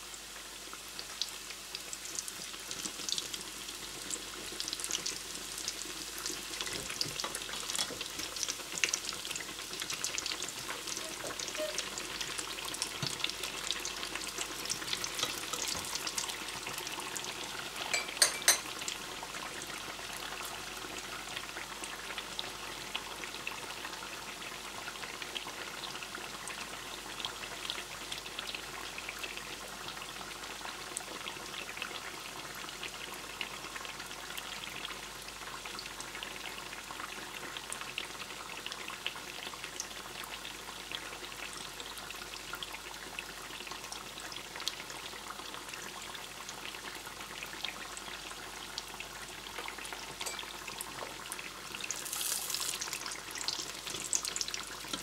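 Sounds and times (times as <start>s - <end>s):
food sizzling in hot oil: 0.0s - 55.0s.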